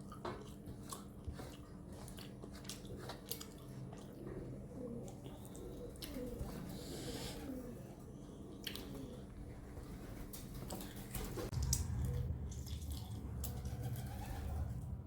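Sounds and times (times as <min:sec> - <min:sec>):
wet eating sounds: 0:00.0 - 0:07.4, 0:08.2 - 0:09.4, 0:10.6 - 0:13.7
low steady rumble: 0:11.4 - 0:15.0.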